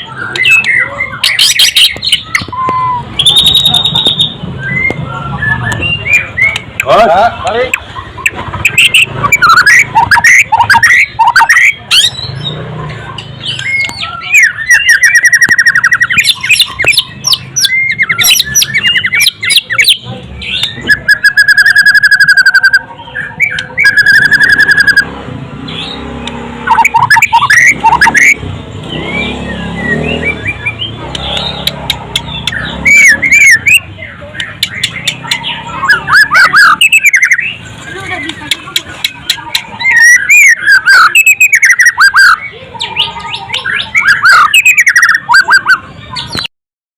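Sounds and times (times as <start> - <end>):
bird singing: 0.0 - 46.5
long bird whistles: 0.2 - 6.6, 13.6 - 20.0, 35.5 - 37.6, 39.8 - 42.5.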